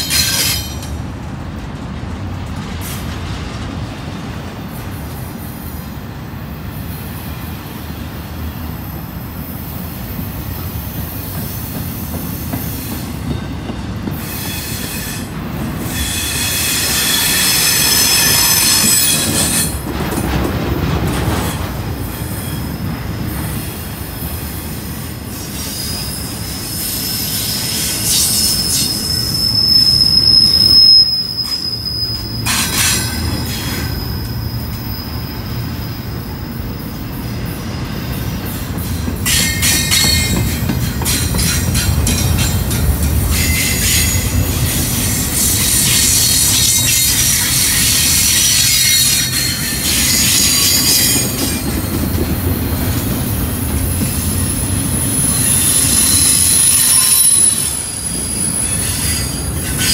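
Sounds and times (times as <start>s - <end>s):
freight train wheels rumbling: 0.0s - 59.9s
high-pitched wheel squeal: 14.2s - 19.8s, 25.4s - 36.3s, 45.0s - 51.7s, 54.4s - 59.9s.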